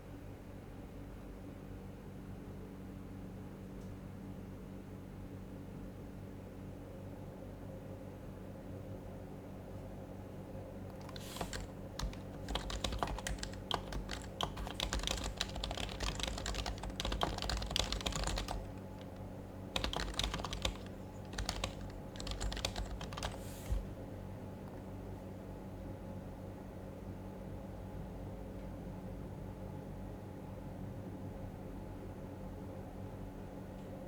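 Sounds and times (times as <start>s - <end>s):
soft keyboard typing: 10.9s - 24.0s.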